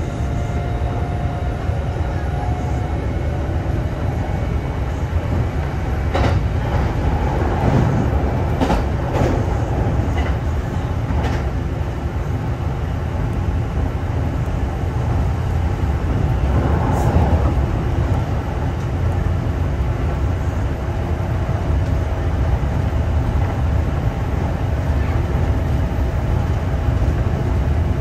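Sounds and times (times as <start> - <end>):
train wheels rumbling on rails: 0.0 - 28.0
train clatter: 4.1 - 12.0.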